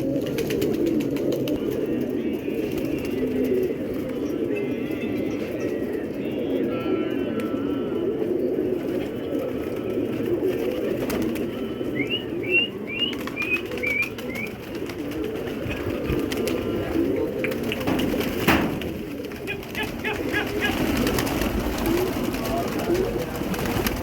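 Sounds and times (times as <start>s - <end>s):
pigeons cooing: 0.0s - 24.0s
bird chirping high: 11.7s - 14.6s.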